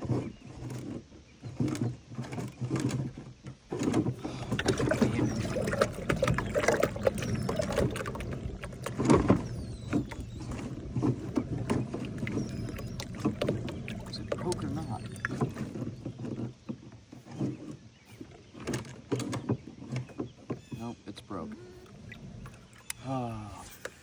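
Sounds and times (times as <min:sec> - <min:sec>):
gear knocking on plastic kayak: 0:00.0 - 0:20.8
water moving around hull: 0:00.0 - 0:24.0
steady low hum: 0:04.1 - 0:16.2.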